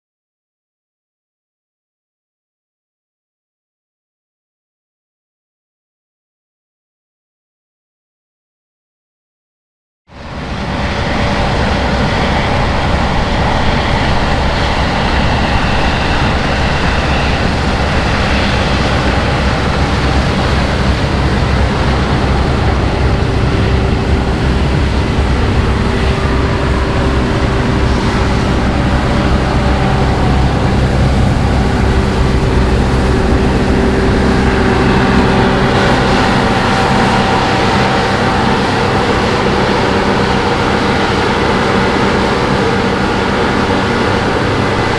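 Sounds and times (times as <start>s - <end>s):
combine harvester engine drone: 10.1s - 44.9s
steady higher tone: 10.2s - 44.9s
threshing machinery whine: 10.2s - 44.9s.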